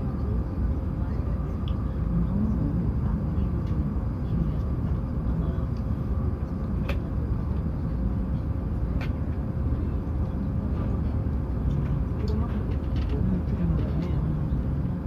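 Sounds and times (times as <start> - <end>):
faint hum: 0.0 - 15.0
high-speed train rumble inside cabin: 0.0 - 15.0.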